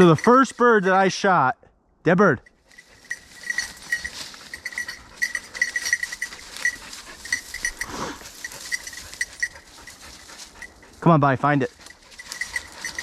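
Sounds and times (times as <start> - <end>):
dog collar bell jingling: 0.0 - 1.0, 2.4 - 13.0
rustling of brush and leaves: 2.6 - 13.0.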